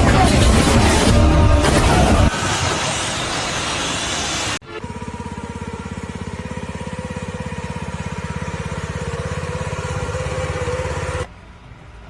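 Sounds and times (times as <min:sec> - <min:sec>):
engine chugging: 0:04.6 - 0:11.3.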